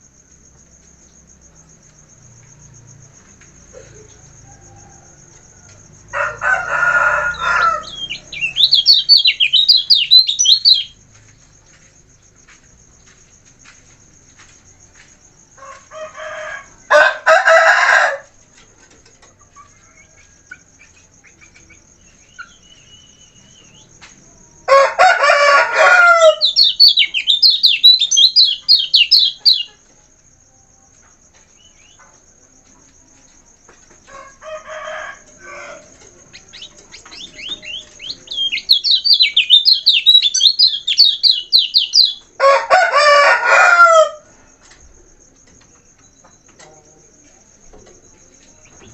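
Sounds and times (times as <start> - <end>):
loud harsh bird calls: 6.2 - 11.0, 36.3 - 44.2
bird twittering trills: 7.3 - 11.0, 26.4 - 29.8, 36.3 - 42.3.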